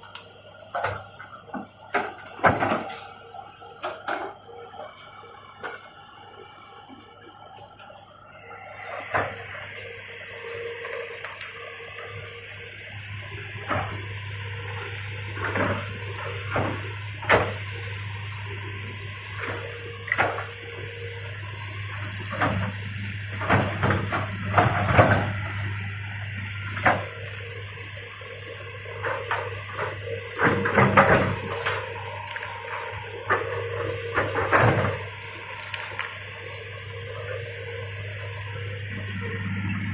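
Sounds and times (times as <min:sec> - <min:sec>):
excavator engine running: 0:00.0 - 0:39.9
sharp cracks and knocks: 0:34.1 - 0:36.2.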